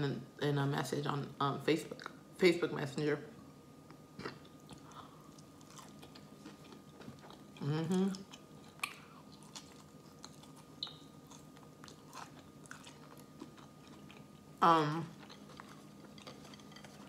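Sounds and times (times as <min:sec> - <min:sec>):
close chewing: 0:04.2 - 0:17.0.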